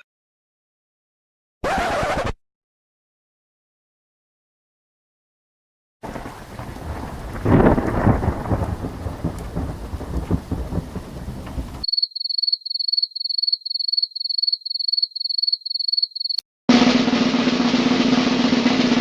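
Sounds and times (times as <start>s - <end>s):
steady rain: 6.0s - 11.9s
thunder rumbling: 6.0s - 11.9s.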